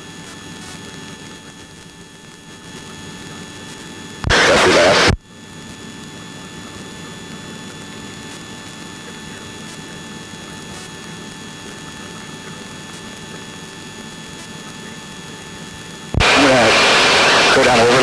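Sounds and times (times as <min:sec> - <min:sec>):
faint steady tones: 0:16.2 - 0:18.0.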